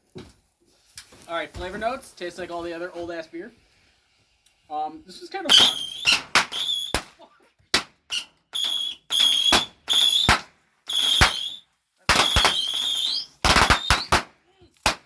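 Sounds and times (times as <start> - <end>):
firework bangs: 5.4 - 7.2, 7.8 - 15.0
whistling fireworks: 5.4 - 7.2, 8.0 - 15.0.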